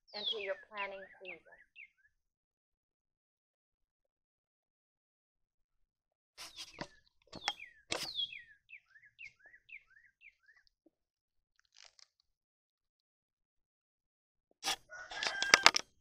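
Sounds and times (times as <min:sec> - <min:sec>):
sharp high bird calls: 0:00.1 - 0:02.0, 0:06.4 - 0:10.6
short falling bird chirps: 0:06.4 - 0:10.6.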